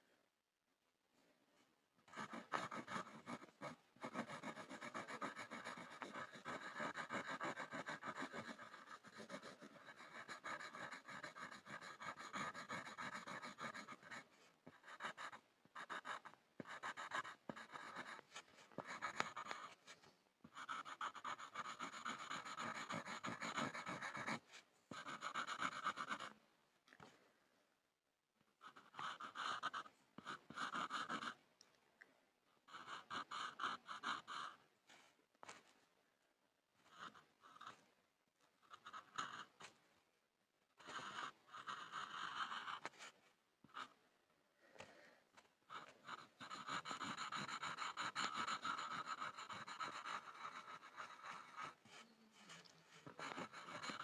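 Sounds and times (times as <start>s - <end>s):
pencil scribbling on a board: 2.1s - 26.4s, 28.6s - 31.4s, 32.7s - 34.6s, 36.8s - 37.8s, 38.6s - 39.8s, 40.8s - 44.0s, 45.7s - 54.0s.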